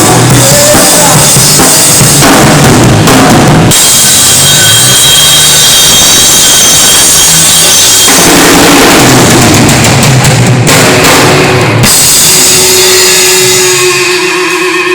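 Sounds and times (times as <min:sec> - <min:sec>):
drums and cymbals pounding: 0:00.0 - 0:14.9
rock band playing loud: 0:00.0 - 0:14.9
held note ringing: 0:11.8 - 0:14.9.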